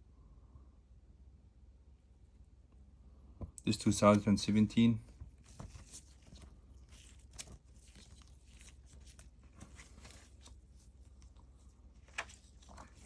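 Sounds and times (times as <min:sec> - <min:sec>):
paper banknotes crinkling: 0:03.6 - 0:13.0.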